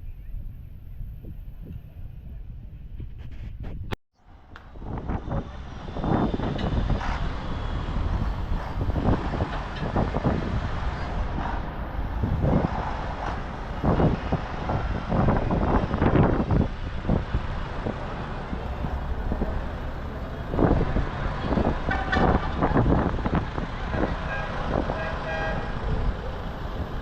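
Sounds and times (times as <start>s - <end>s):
tractor engines rumbling past: 4.2s - 27.0s
short pitched horn: 23.9s - 25.8s.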